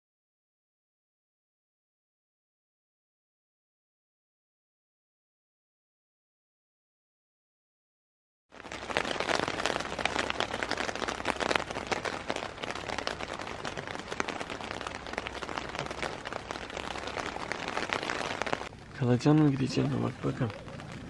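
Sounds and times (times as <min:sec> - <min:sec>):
raindrops pattering close by: 0:08.5 - 0:21.0
steady rain: 0:08.5 - 0:21.0.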